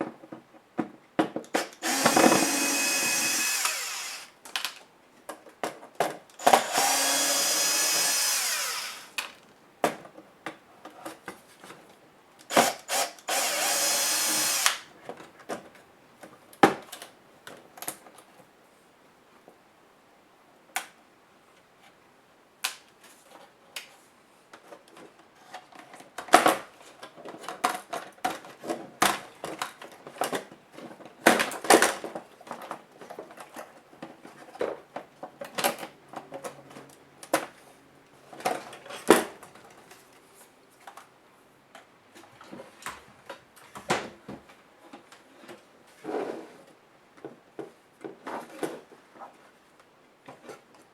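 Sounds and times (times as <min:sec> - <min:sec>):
electric screwdriver whirring: 0:01.6 - 0:04.4, 0:06.4 - 0:09.3, 0:12.5 - 0:14.9.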